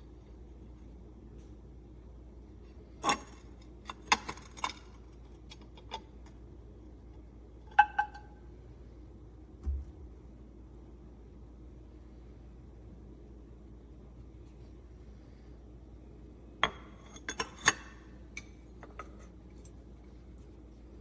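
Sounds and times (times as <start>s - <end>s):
glass containers clinking: 7.8s - 8.3s
dull thump: 9.6s - 10.0s.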